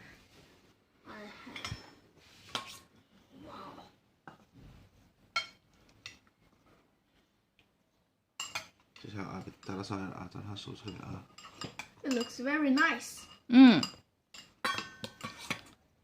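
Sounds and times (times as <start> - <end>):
utensils clinking on plates: 1.6 - 2.0, 8.4 - 15.8.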